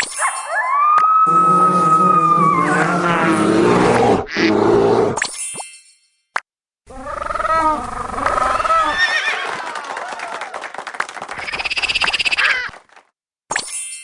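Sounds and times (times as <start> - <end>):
wavering animal calls: 1.2 - 5.1, 6.9 - 9.3
fast rattling call: 11.4 - 12.7.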